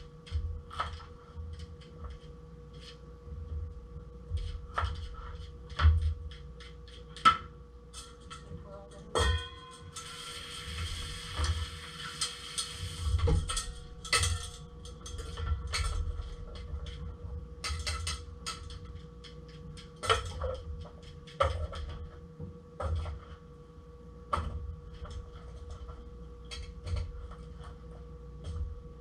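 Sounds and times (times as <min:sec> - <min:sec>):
faint steady hum: 0:00.0 - 0:29.0
utensils and cookware clinking: 0:09.1 - 0:10.6, 0:13.4 - 0:16.0.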